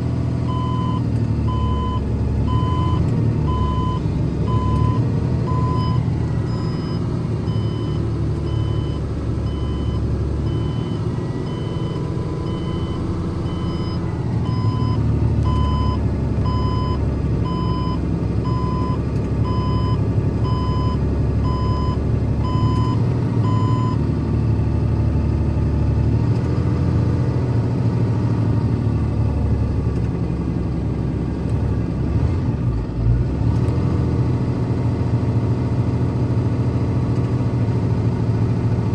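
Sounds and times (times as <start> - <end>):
truck engine running: 0.0 - 38.9
reverse alarm beeping: 0.5 - 24.0.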